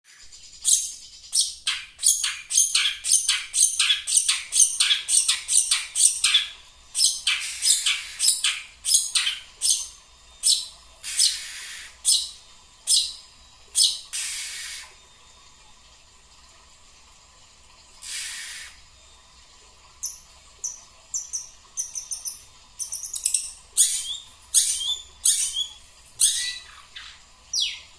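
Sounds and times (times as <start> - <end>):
bird squawking calls: 2.0 - 12.3
harsh hissing: 11.1 - 12.0, 14.2 - 15.0, 18.0 - 18.9.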